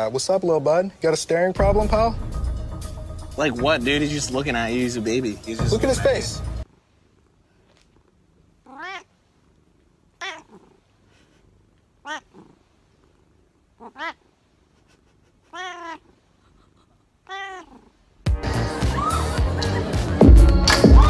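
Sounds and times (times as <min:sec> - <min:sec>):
cat meowing: 0:08.6 - 0:09.2, 0:10.2 - 0:10.8, 0:12.0 - 0:12.6, 0:13.8 - 0:14.3, 0:15.4 - 0:16.2, 0:17.2 - 0:18.0.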